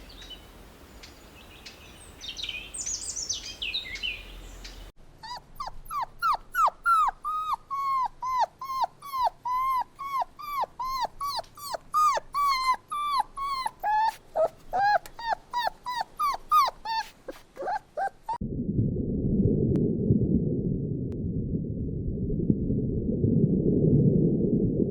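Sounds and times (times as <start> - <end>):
dog yelping whimpers: 5.2 - 18.4
steady low rumbling noise: 18.4 - 24.9.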